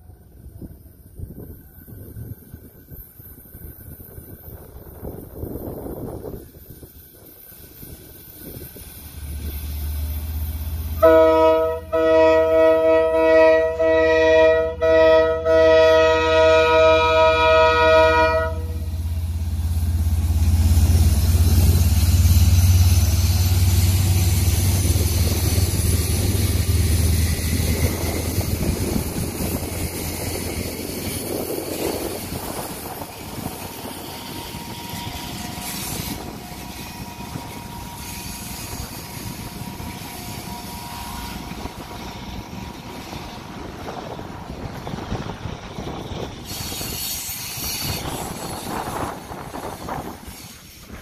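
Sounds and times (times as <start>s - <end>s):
locomotive horn: 11.0s - 18.9s.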